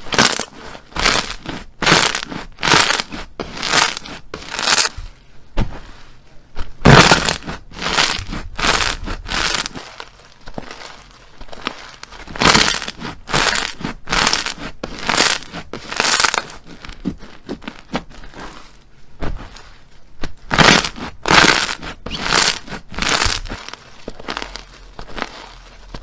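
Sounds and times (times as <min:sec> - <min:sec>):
slime squelching by hand: 0:06.8 - 0:26.0.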